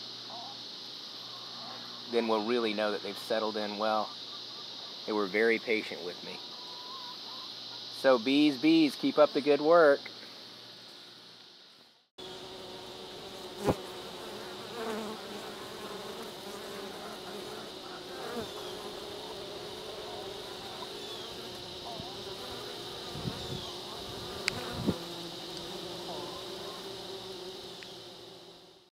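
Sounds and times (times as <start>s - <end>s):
bees flying past close by: 12.2s - 28.9s
honeybees buzzing: 12.2s - 28.9s.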